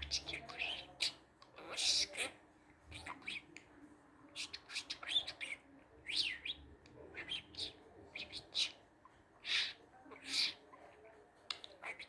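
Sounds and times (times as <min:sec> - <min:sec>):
budgerigar chirping and warbling: 0:00.0 - 0:03.4, 0:07.2 - 0:08.8, 0:09.4 - 0:10.7.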